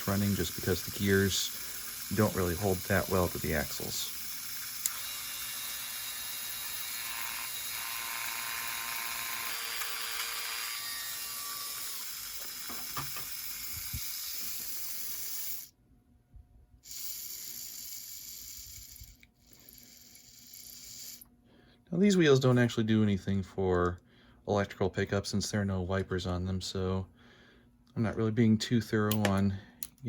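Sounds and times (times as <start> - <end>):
model locomotive motor whirring: 0.0 - 15.7, 16.8 - 21.3.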